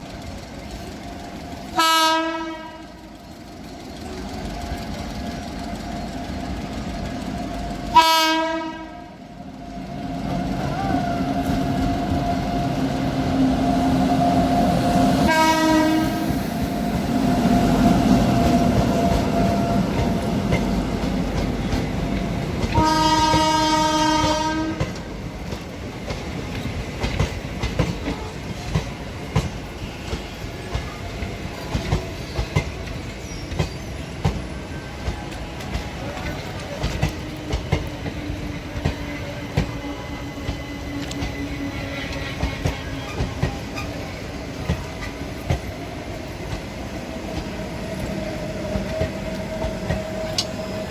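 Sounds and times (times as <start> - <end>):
train running noise: 0.0 - 50.9
train horn blasts: 1.7 - 3.1, 7.9 - 9.2, 15.2 - 16.3, 22.7 - 25.0.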